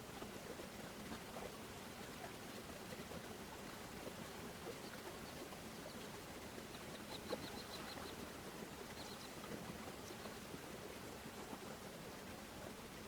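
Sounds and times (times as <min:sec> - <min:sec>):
bird chirping: 0:06.9 - 0:08.2.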